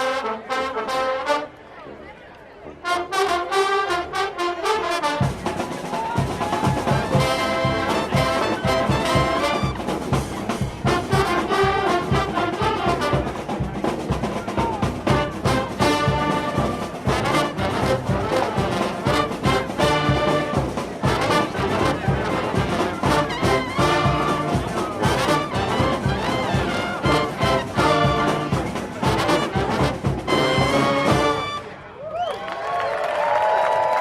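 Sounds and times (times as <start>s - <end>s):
brass band music: 0.0s - 1.6s, 2.6s - 32.0s
percussion beat: 5.2s - 31.5s.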